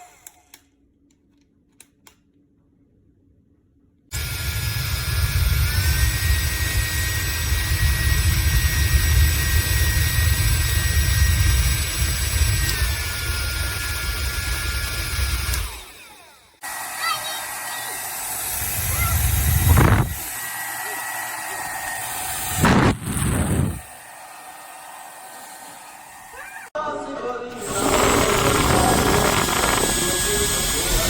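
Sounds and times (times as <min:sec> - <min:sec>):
hair dryer running: 0:04.1 - 0:26.7, 0:27.5 - 0:31.0
airflow buffeting microphone: 0:18.6 - 0:20.3, 0:22.5 - 0:23.9, 0:27.6 - 0:31.0.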